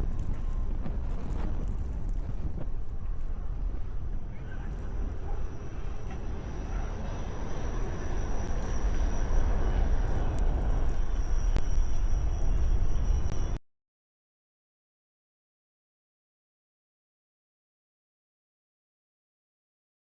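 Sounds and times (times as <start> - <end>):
blizzard wind buffeting microphone: 0.0 - 13.6.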